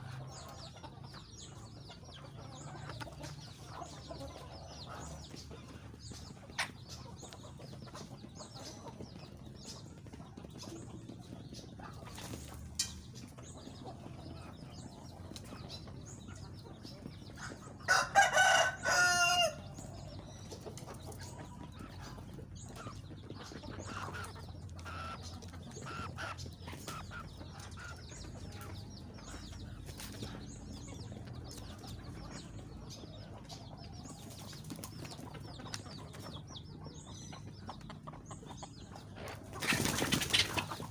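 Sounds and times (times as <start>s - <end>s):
chickens clucking: 0.0s - 40.9s
rooster crowing: 17.9s - 19.6s.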